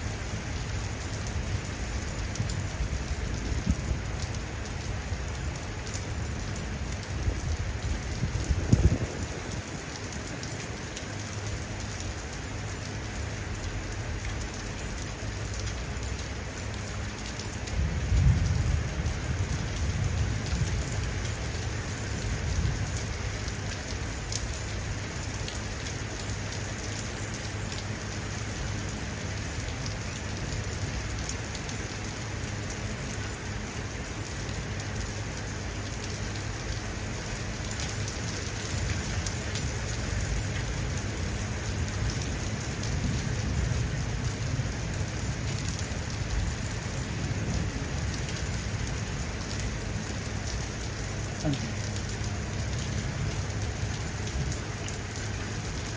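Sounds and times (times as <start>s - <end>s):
steady rain falling: 0.0s - 55.9s
thunder rumble: 7.3s - 9.8s, 17.8s - 21.3s.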